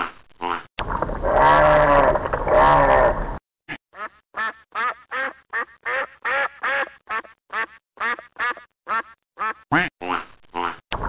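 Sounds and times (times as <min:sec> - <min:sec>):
long duck call: 0:04.0 - 0:10.7
duck quacking: 0:04.0 - 0:10.8.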